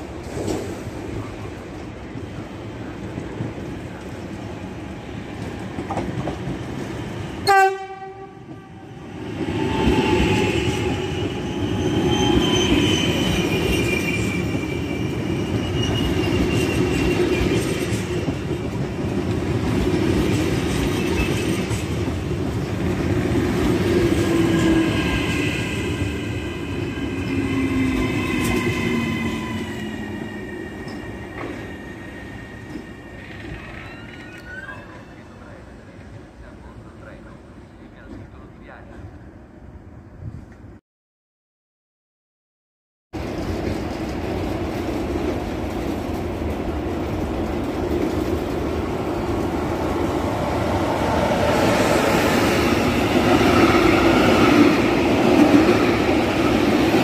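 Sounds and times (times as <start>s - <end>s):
train wheels rumbling on rails: 0.0s - 34.5s, 43.2s - 57.0s
train horn blast: 7.4s - 8.9s.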